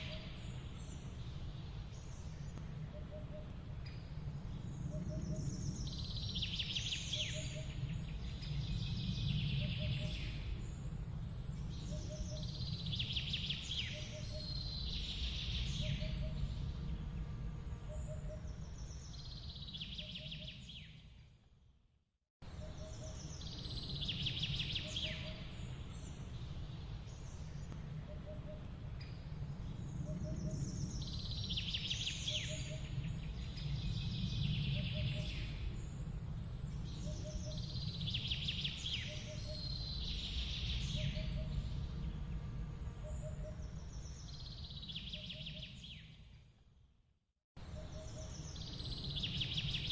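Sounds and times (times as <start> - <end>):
steady low rumble: 25.3 - 42.7.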